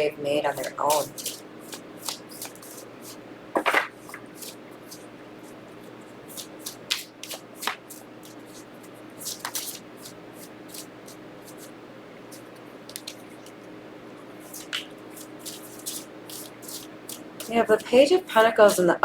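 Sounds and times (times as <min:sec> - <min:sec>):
faint steady hum: 0:00.0 - 0:19.0
cards slapping and sliding: 0:00.6 - 0:05.6, 0:06.3 - 0:11.7, 0:12.3 - 0:13.3, 0:14.4 - 0:17.6.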